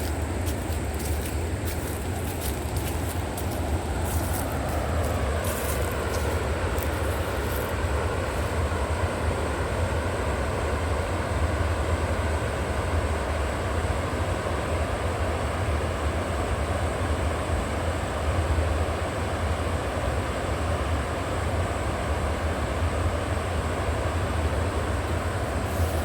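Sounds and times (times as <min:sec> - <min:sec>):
river water rushing: 0:00.0 - 0:11.7.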